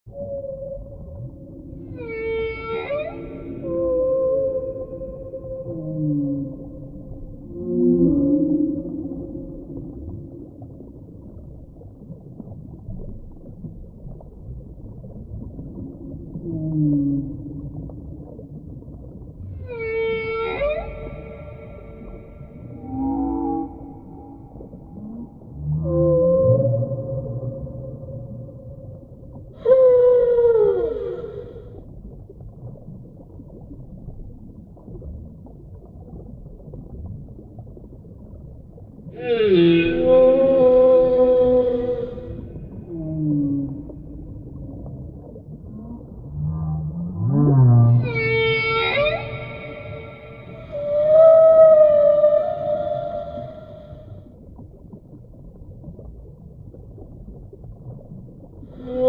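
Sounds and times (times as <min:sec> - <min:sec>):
whale call: 0:00.1 - 0:10.7, 0:15.8 - 0:18.4, 0:19.3 - 0:31.8, 0:39.1 - 0:54.4, 0:58.7 - 0:59.0
low hiss and rumble: 0:00.1 - 0:59.0
underwater rumbling hiss: 0:29.6 - 0:31.9.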